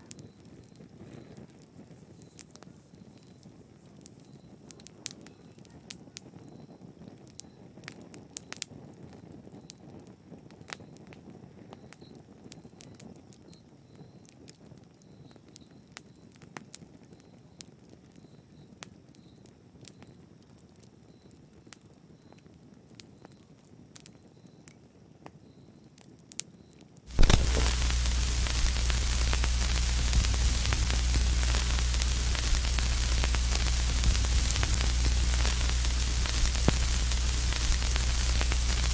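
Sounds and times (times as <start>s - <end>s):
loud steady hiss: 27.1s - 38.9s
low hum: 27.1s - 38.9s
sharp pops: 27.1s - 38.9s
wood fire crackling: 27.1s - 38.9s.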